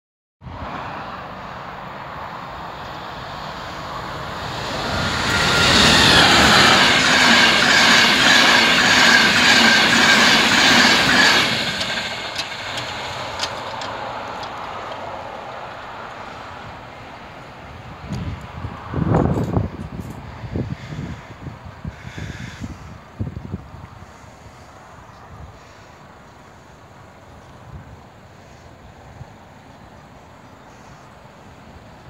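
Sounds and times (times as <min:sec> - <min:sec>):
passing train rumble: 0:00.4 - 0:32.0
steady high tone: 0:03.8 - 0:12.2.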